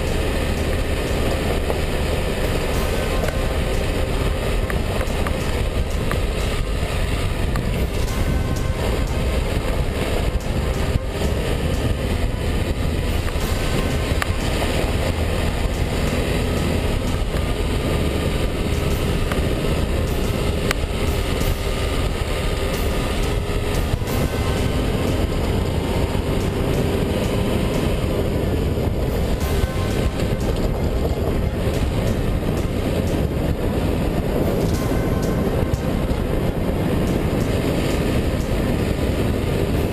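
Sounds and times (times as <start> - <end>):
car engine hum: 0.0 - 39.9
road rumble: 0.0 - 39.9.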